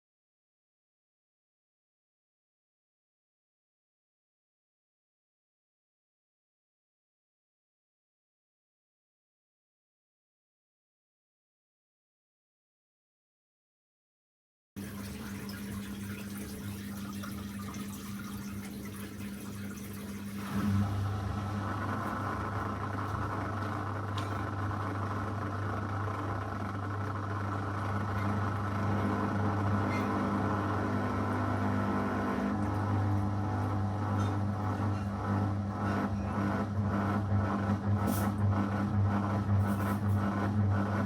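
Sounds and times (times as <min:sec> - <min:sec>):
washing machine motor humming: 0:14.8 - 0:41.0
washing machine running: 0:14.8 - 0:41.0.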